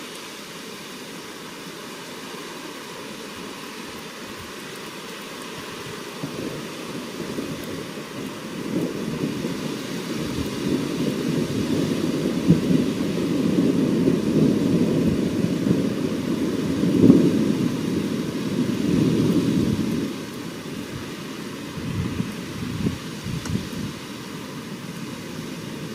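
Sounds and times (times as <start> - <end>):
rolling thunder rumble: 6.2 - 21.1.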